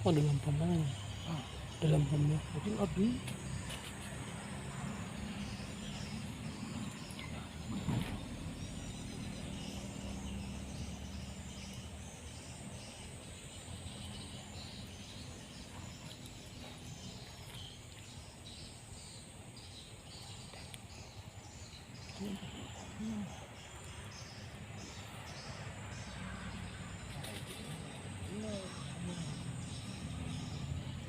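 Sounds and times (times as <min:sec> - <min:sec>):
insects chirping: 0:00.0 - 0:31.0.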